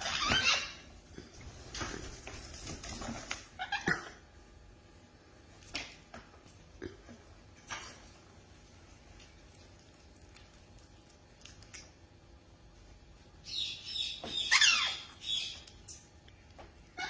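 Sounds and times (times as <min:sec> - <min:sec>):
parrot squawking: 0:00.0 - 0:00.9, 0:03.5 - 0:04.1, 0:13.5 - 0:15.6.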